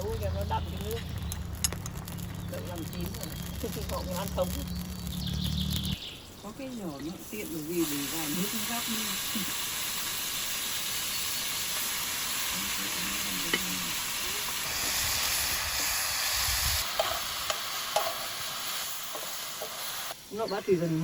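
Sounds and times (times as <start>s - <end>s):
food sizzling in a pan: 6.7s - 21.0s.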